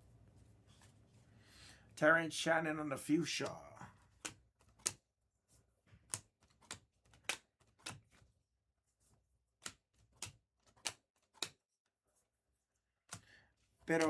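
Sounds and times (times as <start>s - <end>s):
cards being flipped: 3.4s - 5.0s, 6.0s - 8.3s, 9.6s - 11.6s.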